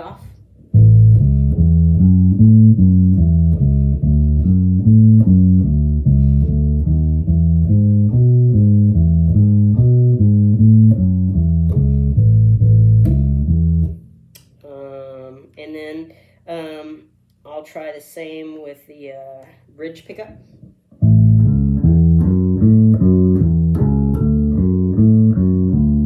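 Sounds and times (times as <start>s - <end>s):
bass guitar riff plucked notes: 0.0s - 14.5s, 21.0s - 26.0s.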